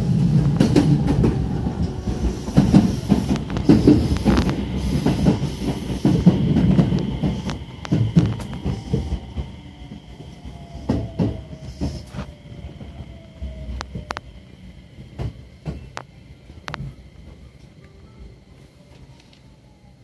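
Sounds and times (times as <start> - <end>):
train running noise: 0.0 - 20.0
train wheels clicking over rail joints: 0.1 - 14.3, 15.0 - 18.0.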